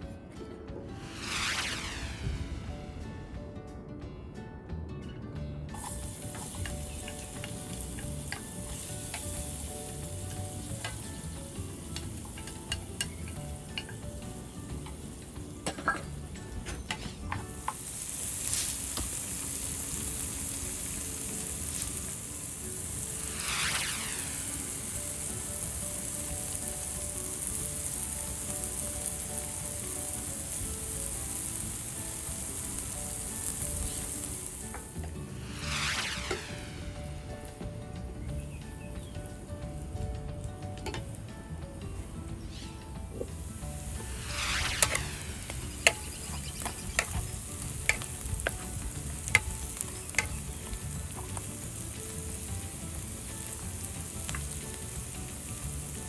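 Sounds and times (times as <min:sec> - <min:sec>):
garlic and onion sizzling in oil: 0:01.0 - 0:02.7, 0:05.7 - 0:56.0
spatula scraping a pan: 0:45.7 - 0:50.5.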